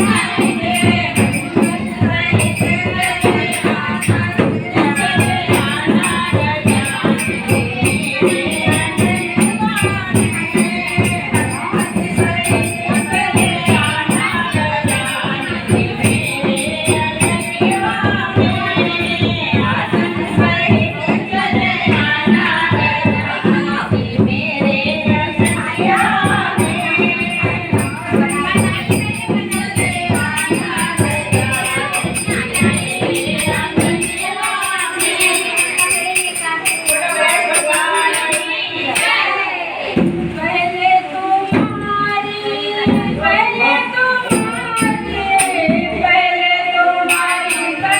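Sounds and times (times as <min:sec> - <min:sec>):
fast percussion beat: 0:00.0 - 0:39.3, 0:44.0 - 0:47.9
woman singing devotional song: 0:00.0 - 0:47.9.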